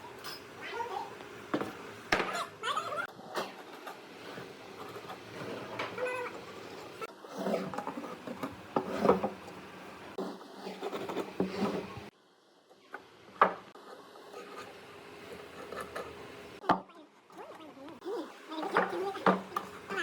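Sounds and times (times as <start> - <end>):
wood scraping: 3.7 - 12.1.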